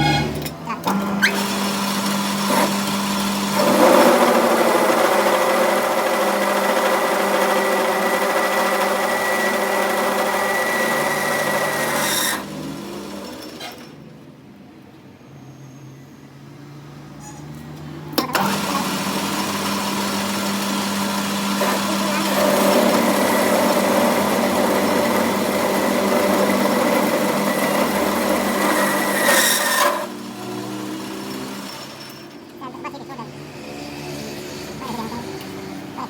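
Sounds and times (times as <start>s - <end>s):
electric machine whining: 18.3s - 36.0s.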